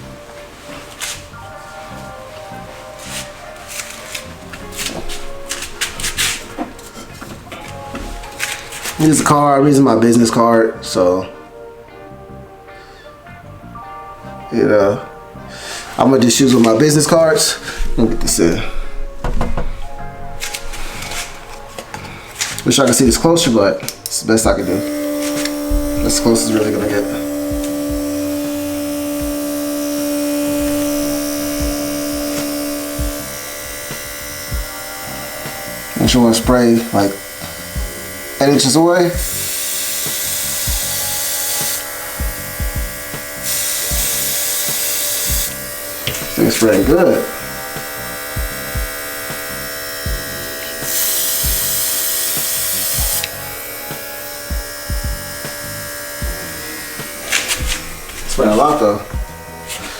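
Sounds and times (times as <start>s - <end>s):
air compressor humming: 0.0s - 9.5s, 15.6s - 59.9s
airbrush spraying hiss: 0.2s - 7.1s, 24.6s - 59.9s.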